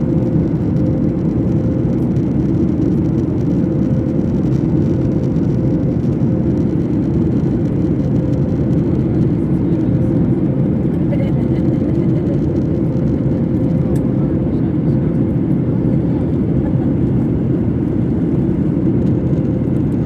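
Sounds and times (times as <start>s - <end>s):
airliner cabin low roar: 0.0s - 20.0s.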